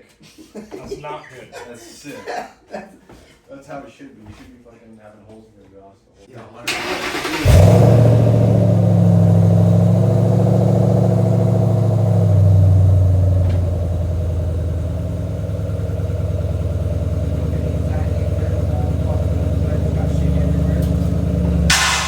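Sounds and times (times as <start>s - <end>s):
car engine idling: 6.8s - 22.0s.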